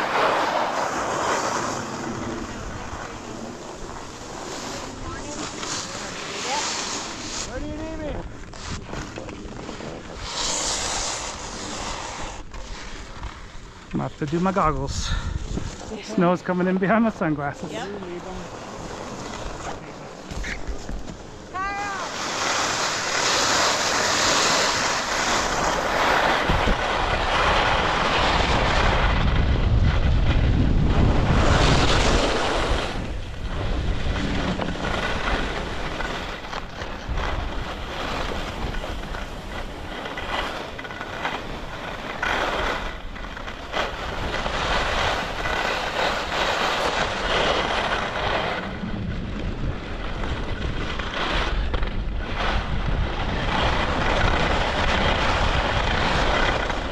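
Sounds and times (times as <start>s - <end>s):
ski edges scraping snow: 0.0s - 56.9s
wind buffeting microphone: 14.4s - 16.1s, 24.1s - 56.9s.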